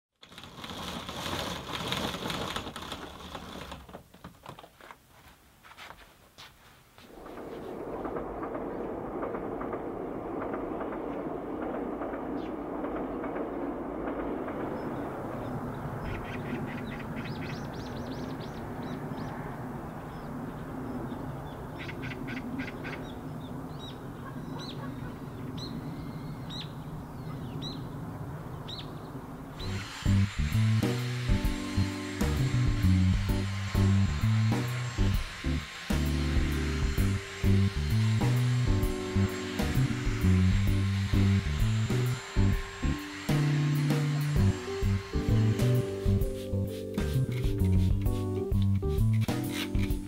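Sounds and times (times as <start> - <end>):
low rumble: 7.1 - 21.8, 23.0 - 49.3
bird trilling: 14.6 - 29.8
small birds chirping: 14.6 - 29.8.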